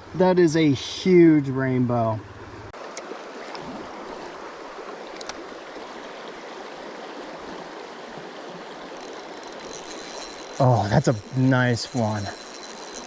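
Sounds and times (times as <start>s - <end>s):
stream water rushing: 0.6s - 13.0s
faint clicks: 9.0s - 13.0s.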